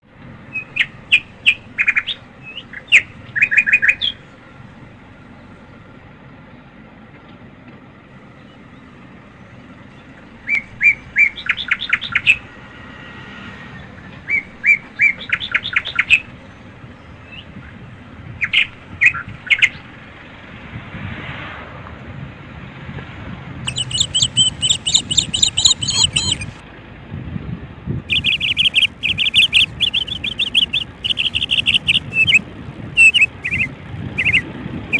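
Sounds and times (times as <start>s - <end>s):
bird chirping: 0.5s - 4.4s, 8.3s - 12.5s, 14.3s - 17.7s, 18.4s - 19.9s, 23.7s - 26.6s, 28.1s - 34.9s
low background rumble: 23.4s - 34.9s.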